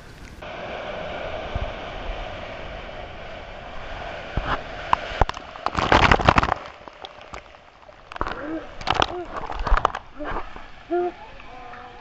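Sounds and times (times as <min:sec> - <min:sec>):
sea surf: 0:00.0 - 0:12.0
wind: 0:00.0 - 0:12.0
sharp crackling knocks and clicks: 0:04.9 - 0:10.1.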